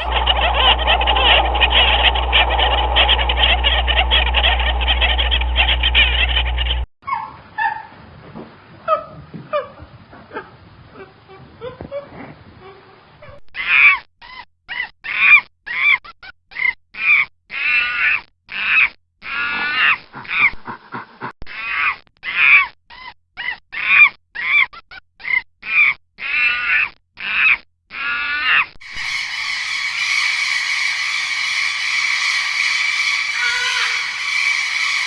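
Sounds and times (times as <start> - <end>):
steady sound: 0.0 - 6.9
animal calling: 0.0 - 7.8, 14.7 - 35.0.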